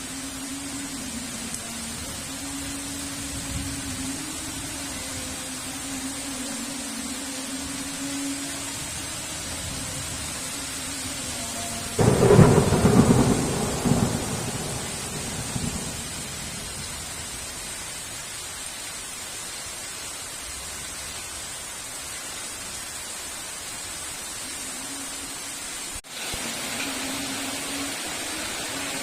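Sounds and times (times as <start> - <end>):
heavy rain: 0.0 - 29.0
thunderclap: 12.0 - 16.6.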